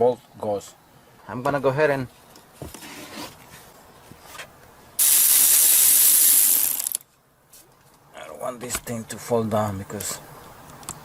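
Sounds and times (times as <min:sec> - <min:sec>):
ratchet wrench clicking: 0:05.0 - 0:07.0.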